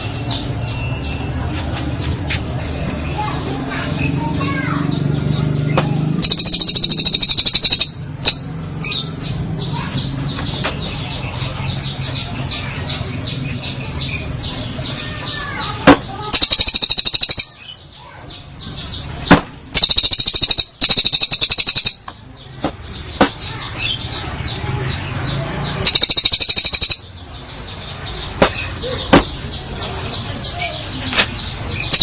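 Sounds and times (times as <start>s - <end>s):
songbird singing high notes: 6.2s - 8.5s, 16.3s - 17.8s, 19.8s - 22.0s.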